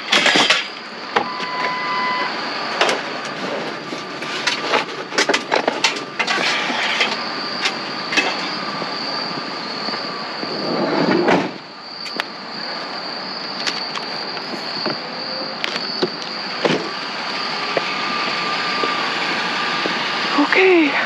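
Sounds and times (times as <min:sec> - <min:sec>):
scrap metal clanking: 0:00.0 - 0:00.8, 0:02.8 - 0:08.7
insects buzzing: 0:00.0 - 0:21.0
metallic squeal: 0:01.2 - 0:02.6, 0:06.2 - 0:11.6.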